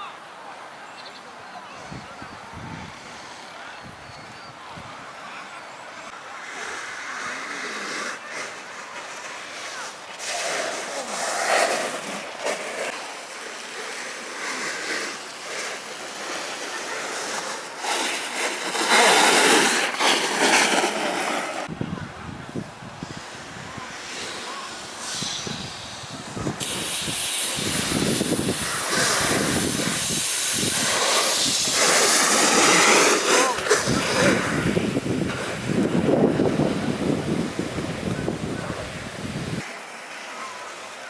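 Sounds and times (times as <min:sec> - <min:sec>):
wind on microphone: 0:01.8 - 0:05.1, 0:21.6 - 0:39.6
snowboard carving on snow: 0:05.3 - 0:41.0.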